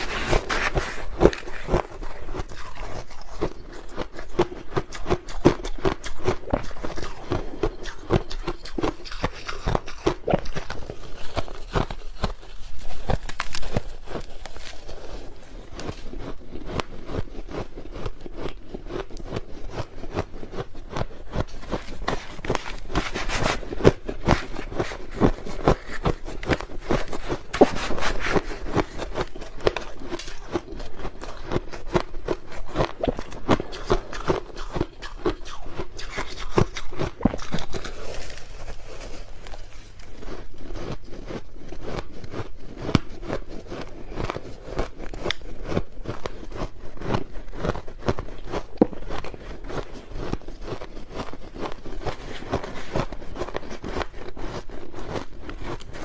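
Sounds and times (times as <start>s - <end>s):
ice crunched between teeth: 0.0s - 56.0s.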